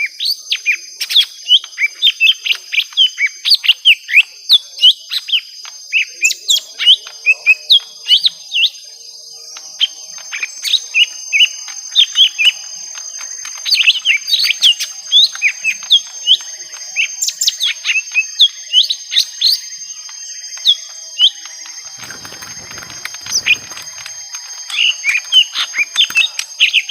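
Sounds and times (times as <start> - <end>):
steady high-pitched tone: 11.1 - 26.9
birds chirping sharply: 13.1 - 26.9
rustling: 21.8 - 24.9.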